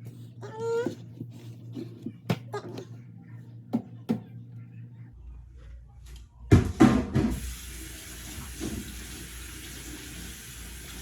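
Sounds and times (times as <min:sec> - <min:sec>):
tap running into sink: 0:07.2 - 0:11.0.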